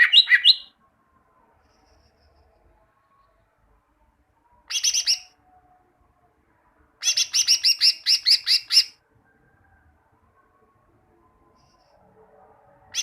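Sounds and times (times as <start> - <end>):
bird song with falling notes: 0.0 - 0.8.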